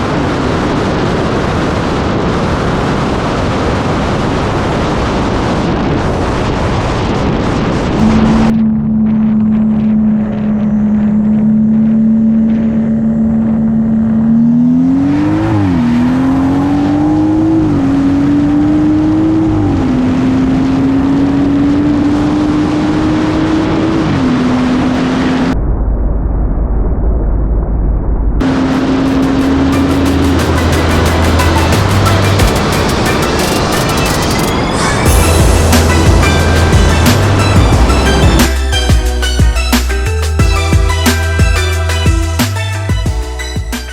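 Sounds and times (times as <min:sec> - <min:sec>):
loud rushing noise: 0:00.0 - 0:13.6, 0:28.4 - 0:43.9
car engine revving through upshifts: 0:08.0 - 0:25.6, 0:28.4 - 0:34.2.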